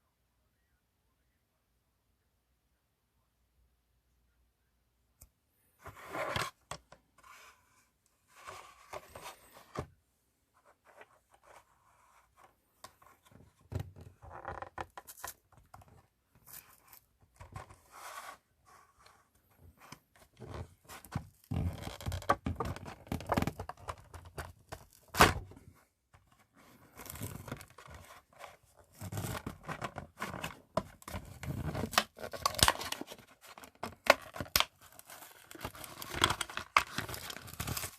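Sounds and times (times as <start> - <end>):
card and plastic packaging tearing: 31.2 - 37.9.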